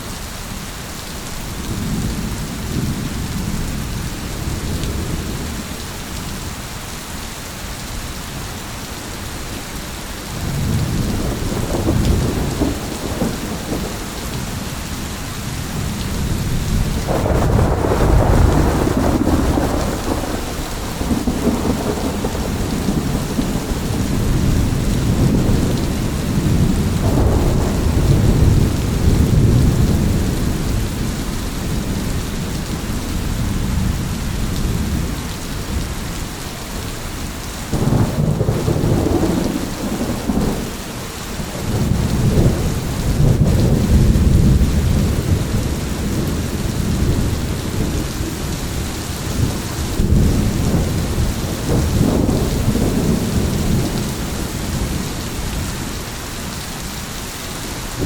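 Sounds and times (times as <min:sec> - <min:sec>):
steady rain: 0:00.0 - 0:58.0
rolling thunder: 0:10.3 - 0:37.0, 0:37.7 - 0:56.6.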